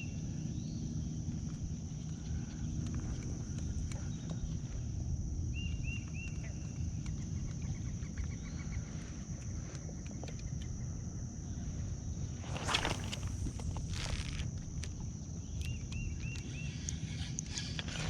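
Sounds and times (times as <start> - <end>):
steady low rumble: 11.8 - 15.5.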